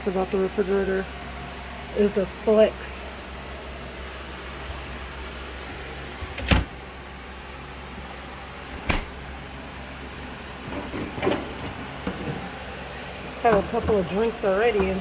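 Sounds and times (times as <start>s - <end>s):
refrigerator door knocks: 8.8s - 9.2s.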